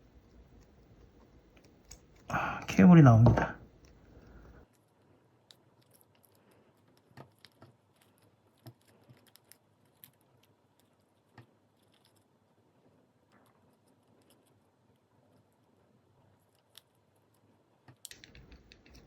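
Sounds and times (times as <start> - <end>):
small tools clicking and tapping: 17.9 - 19.0.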